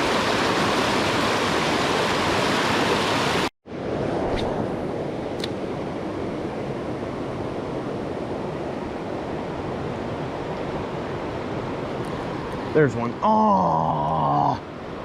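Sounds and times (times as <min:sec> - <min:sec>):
water rushing over rocks: 0:00.0 - 0:03.5.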